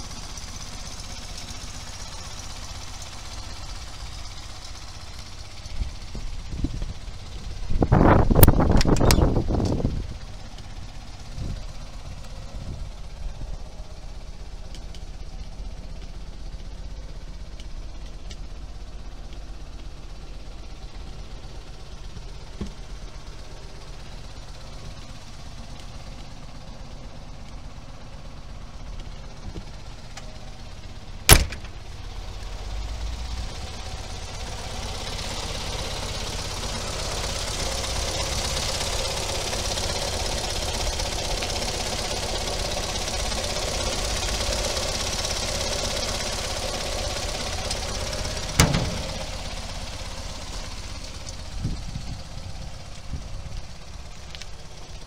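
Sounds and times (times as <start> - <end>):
car engine idling: 0.0 - 55.0
sharp knock: 31.3 - 31.8, 48.6 - 49.4.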